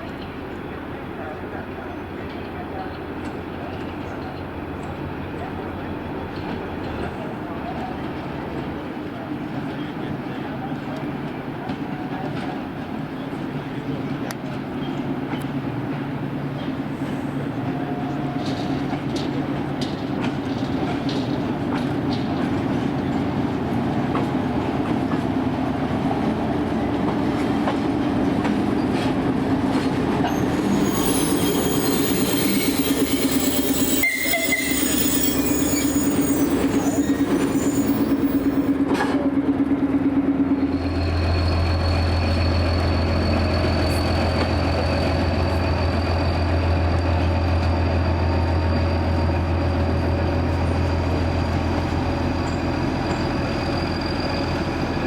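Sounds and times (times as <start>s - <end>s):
train rolling past: 0.0s - 55.0s
high wheel squeal: 30.2s - 38.8s, 40.6s - 55.0s.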